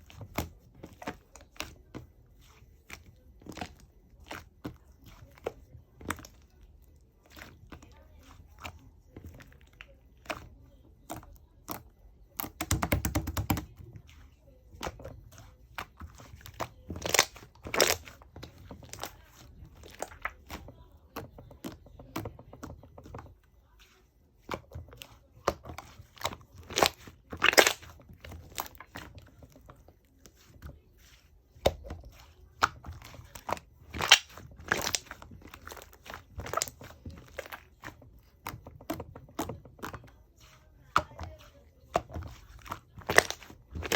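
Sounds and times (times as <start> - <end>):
slime cracks: 26.7 - 28.0, 33.9 - 36.8.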